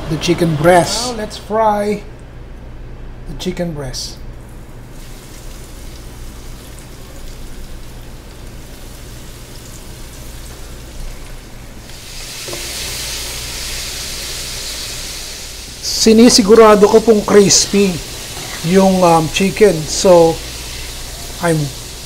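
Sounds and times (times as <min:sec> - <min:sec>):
chicken sizzling in hot oil: 0:04.9 - 0:22.0.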